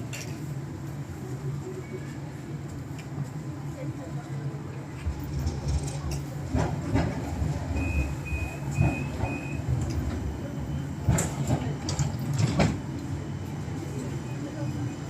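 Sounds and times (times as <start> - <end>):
low rumble of tram: 0.0 - 15.0.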